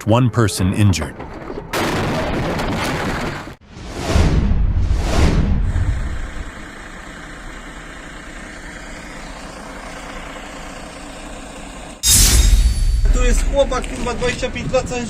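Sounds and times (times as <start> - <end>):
vehicle engine idling: 5.8 - 12.0
loud noise: 12.0 - 14.9.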